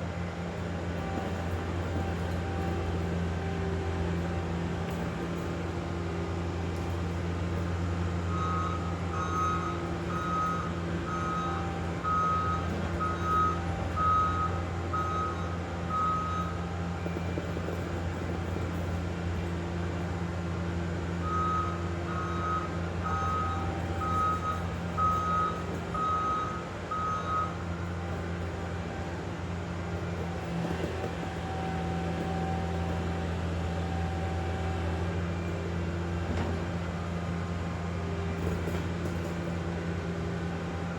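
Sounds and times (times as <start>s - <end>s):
diesel engine running: 0.0s - 40.9s
back-up alarm beeping: 8.3s - 16.6s, 21.2s - 27.7s.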